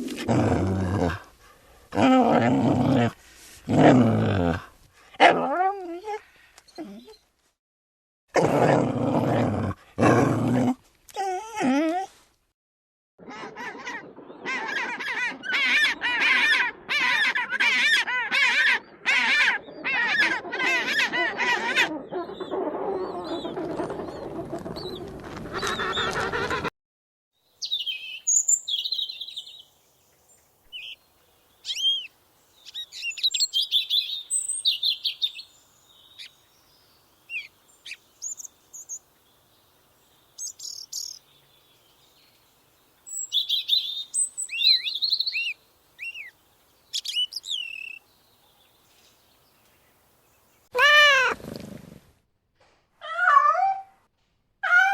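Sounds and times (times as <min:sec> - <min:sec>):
small bird chirping: 0:27.6 - 0:29.7, 0:31.6 - 0:39.5, 0:40.1 - 0:42.4, 0:43.0 - 0:46.3, 0:46.9 - 0:49.8.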